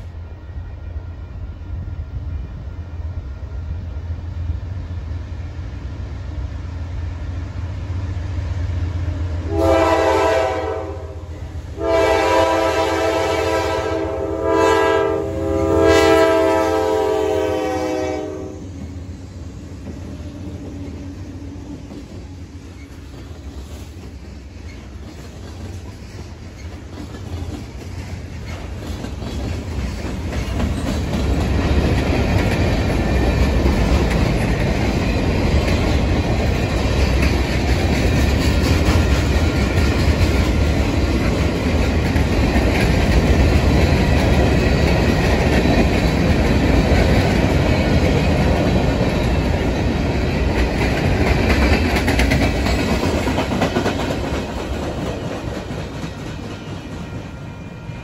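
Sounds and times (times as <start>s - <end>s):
train rumbling past: 0.0s - 58.0s
locomotive horn blasts: 9.5s - 18.7s
wheels clacking over rail joints: 21.7s - 57.2s.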